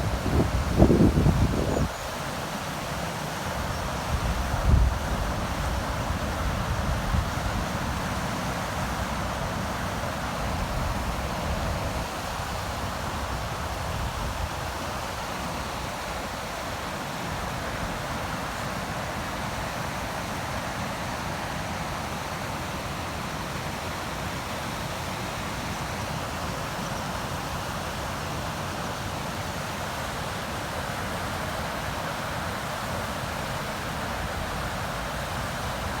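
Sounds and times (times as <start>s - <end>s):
river water rushing: 0.0s - 36.0s
wind buffeting microphone: 0.1s - 2.0s.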